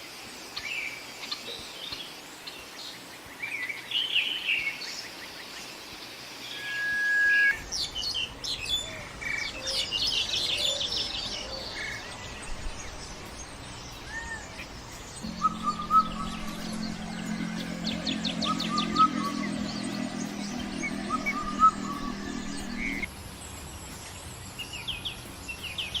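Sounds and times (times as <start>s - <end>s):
birds chirping: 7.8s - 23.1s
whistled bird note: 15.2s - 23.1s.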